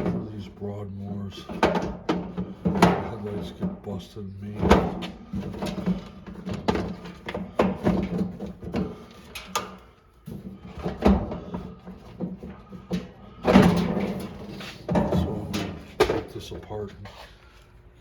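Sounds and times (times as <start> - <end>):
steady low hum: 0.0 - 18.0
irregular knocks and clunks: 1.4 - 4.0, 4.6 - 16.4.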